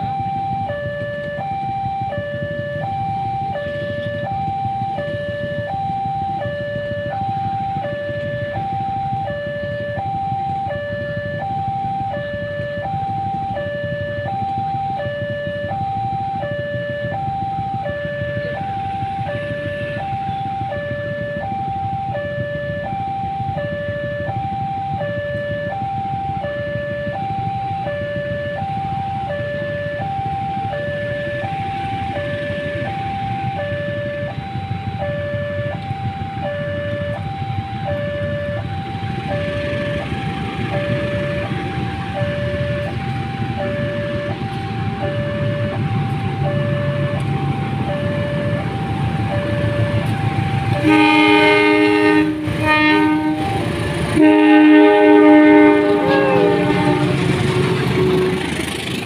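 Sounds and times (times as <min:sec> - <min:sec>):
locomotive engine rumble: 0:00.0 - 0:59.0
two-tone electronic warning alarm: 0:00.0 - 0:59.0
train rushing past: 0:17.8 - 0:26.9, 0:27.9 - 0:59.0
locomotive horn blasts: 0:30.7 - 0:59.0.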